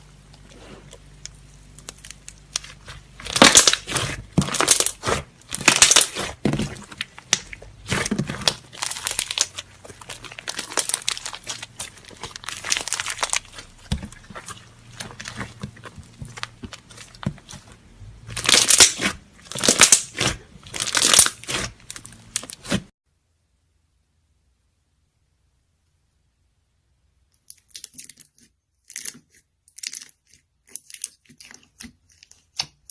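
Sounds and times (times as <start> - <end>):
slime crackling when squeezed: 1.7 - 17.7, 18.3 - 22.8.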